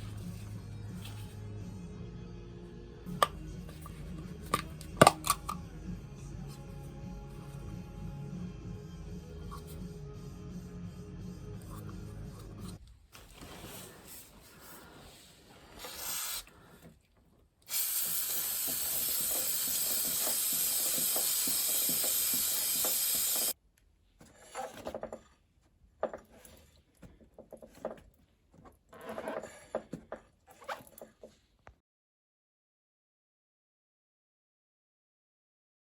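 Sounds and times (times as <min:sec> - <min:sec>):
soft rustling: 0:12.8 - 0:15.9
aerosol spray can hissing: 0:15.8 - 0:16.5, 0:17.7 - 0:23.6.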